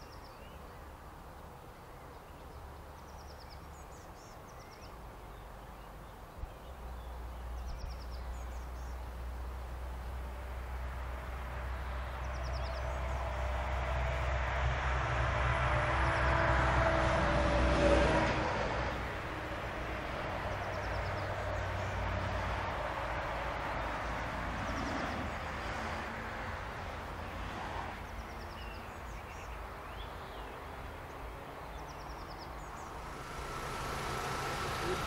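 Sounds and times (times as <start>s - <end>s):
electric train rumble and whine: 12.1s - 20.4s, 32.6s - 35.0s
birds chirping: 28.0s - 35.0s
low steady rumble: 32.7s - 35.0s.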